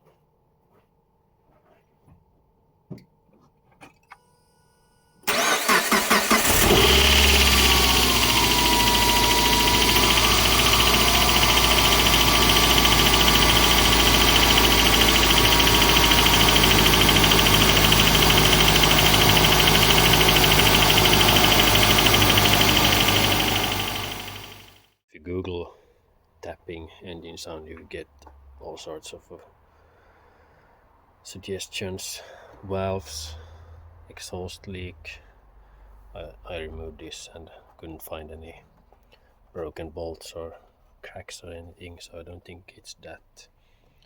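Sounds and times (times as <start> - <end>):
car engine cranking: 5.3 - 24.8
car engine idling: 5.3 - 24.8.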